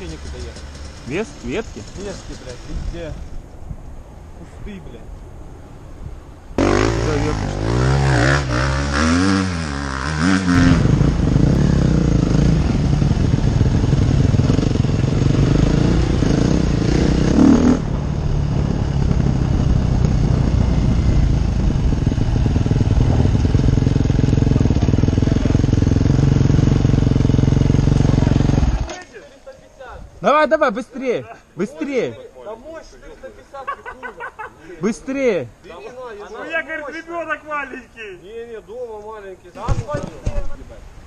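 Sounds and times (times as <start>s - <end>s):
motorcycle engine revving: 0.0s - 3.4s, 6.6s - 29.0s.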